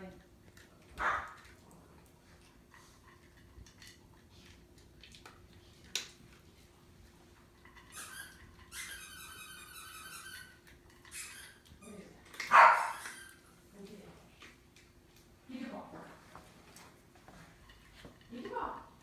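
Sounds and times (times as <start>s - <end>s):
puppy whining: 7.8s - 13.5s.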